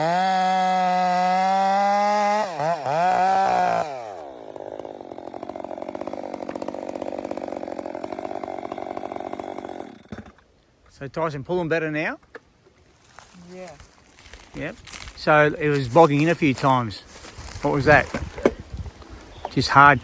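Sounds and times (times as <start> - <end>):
chainsaw pulsing idle: 0.0 - 10.4
chainsaw cutting timber: 0.0 - 10.5.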